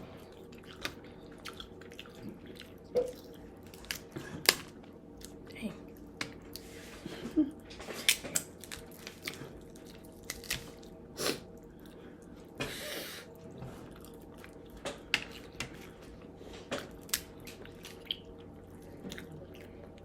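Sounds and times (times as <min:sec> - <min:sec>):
chewing and mouth smacks: 0:00.2 - 0:06.6, 0:13.4 - 0:20.0.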